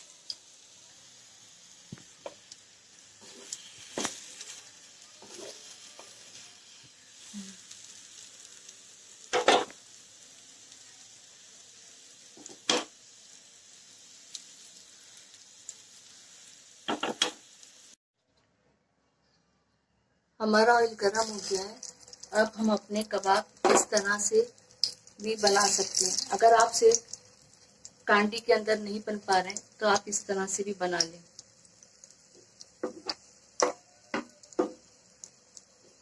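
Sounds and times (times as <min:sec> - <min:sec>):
skewers sizzling in oil: 0:00.0 - 0:18.0, 0:20.5 - 0:36.0
skewers knocking against pan: 0:16.9 - 0:17.4, 0:23.6 - 0:24.0, 0:32.8 - 0:34.8.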